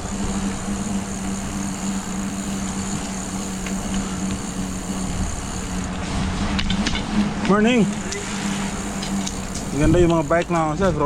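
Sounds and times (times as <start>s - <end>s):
bicycle rolling noise: 0.0s - 11.0s
low hum: 0.0s - 11.0s
wind: 0.0s - 11.0s
faint high ticks: 2.6s - 4.5s, 9.0s - 10.7s.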